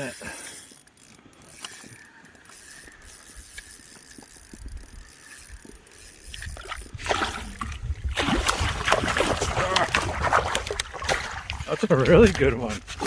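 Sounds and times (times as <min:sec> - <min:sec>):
fishing reel clicking and whirring: 0:00.0 - 0:07.8.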